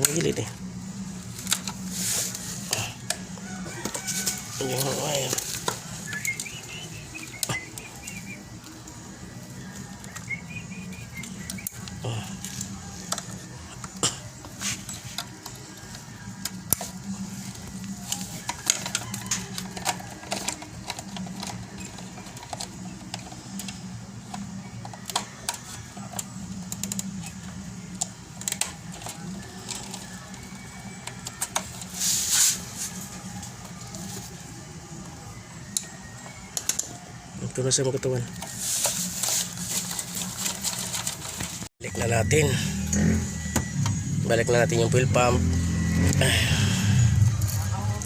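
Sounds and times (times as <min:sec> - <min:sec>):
steady low hum: 0:00.0 - 0:18.6.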